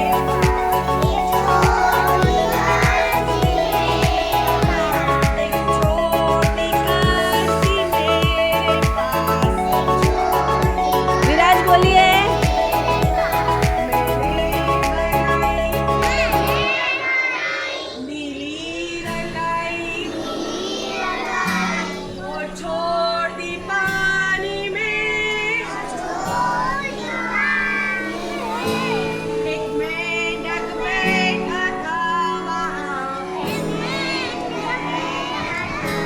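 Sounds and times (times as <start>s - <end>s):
backing track with bass: 0.0s - 16.7s
children's song singing: 0.0s - 36.0s.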